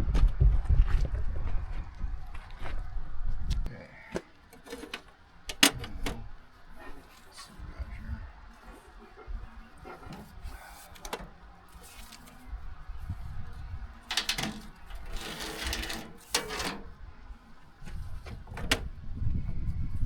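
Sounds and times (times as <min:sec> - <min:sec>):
tools clicking and knocking on metal: 0:04.2 - 0:06.2, 0:14.1 - 0:16.9.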